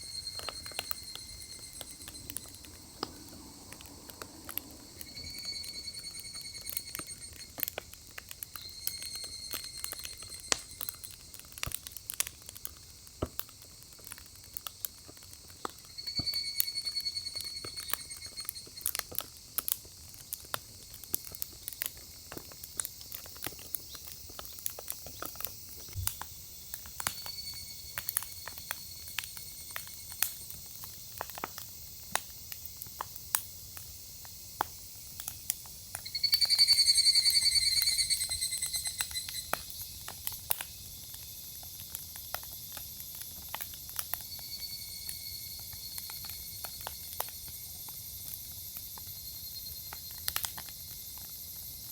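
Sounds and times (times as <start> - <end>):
high whistling tone: 0.0 - 7.7, 8.5 - 11.1, 15.8 - 19.0, 36.0 - 39.8
firewood crackling and popping: 0.0 - 51.9.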